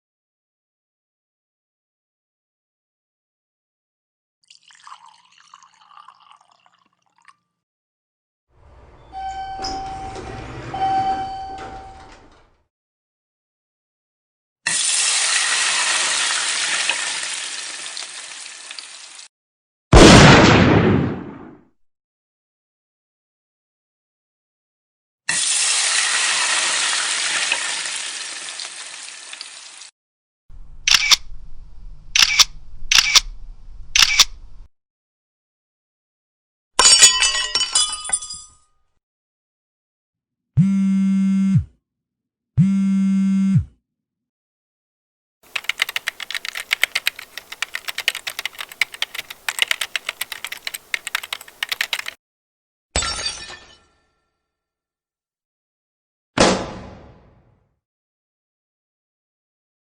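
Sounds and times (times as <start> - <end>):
low hum: 30.5 - 34.6
camera shutter clicks: 30.9 - 31.2, 32.2 - 33.3, 34.0 - 34.4
computer keyboard typing: 45.5 - 52.2.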